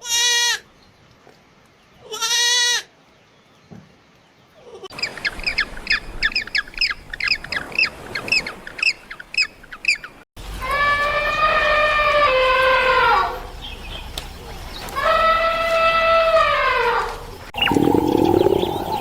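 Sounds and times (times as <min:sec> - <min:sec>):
farm animal bleating: 0:00.0 - 0:00.6, 0:02.0 - 0:02.9.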